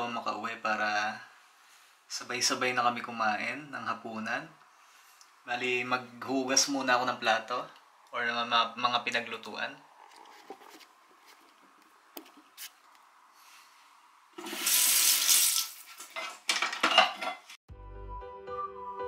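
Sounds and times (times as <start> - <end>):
water gushing from a tap: 14.4 - 16.1
dishes clinking in a sink: 16.1 - 17.5
background music: 17.7 - 19.0.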